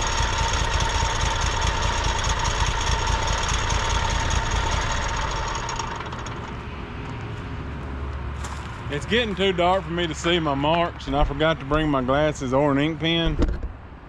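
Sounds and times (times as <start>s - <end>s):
saw whine: 0.0s - 7.0s
sawmill engine running: 0.0s - 11.8s.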